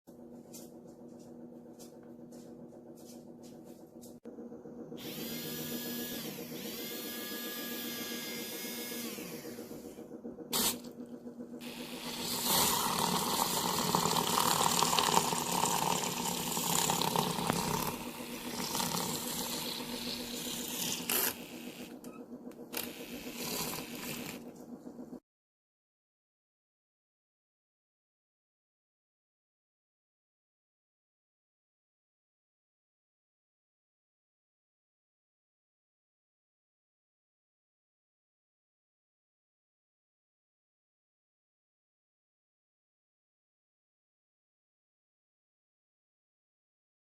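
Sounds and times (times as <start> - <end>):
milk frother motor whirring: 4.3 - 25.2.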